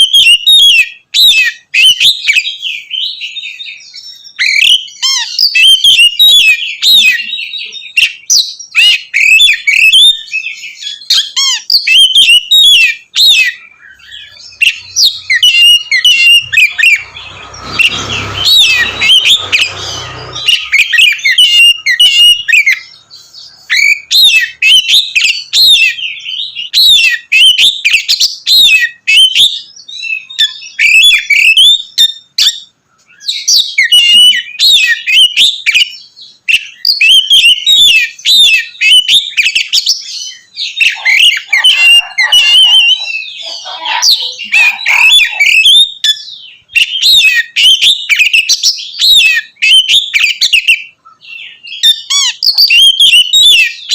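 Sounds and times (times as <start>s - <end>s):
songbird singing whistles and trills: 0.0s - 53.9s
rushing noise: 15.8s - 20.9s.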